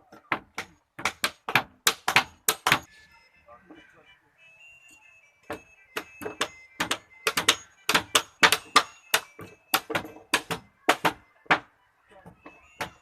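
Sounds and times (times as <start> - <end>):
hammer strikes: 0.0 - 2.9, 5.5 - 11.7, 12.3 - 13.0.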